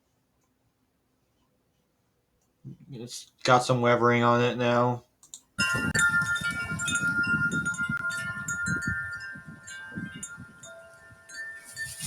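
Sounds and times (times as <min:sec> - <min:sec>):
low rumble of wind: 0:05.6 - 0:12.0
tubular wind chimes ringing: 0:05.6 - 0:12.0.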